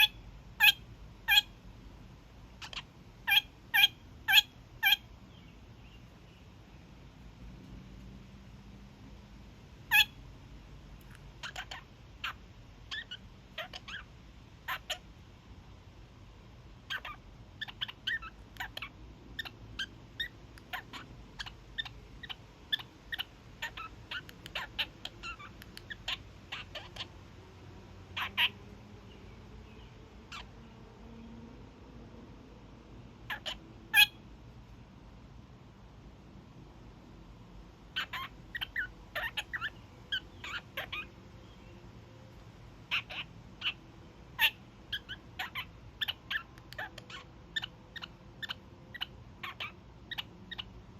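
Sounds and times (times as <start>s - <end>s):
parakeet honking calls: 0.0s - 1.6s, 2.5s - 5.2s, 9.8s - 10.2s, 11.4s - 15.1s, 16.8s - 27.2s, 28.1s - 28.6s, 30.2s - 30.6s, 33.2s - 34.3s, 37.9s - 41.6s, 42.8s - 50.9s.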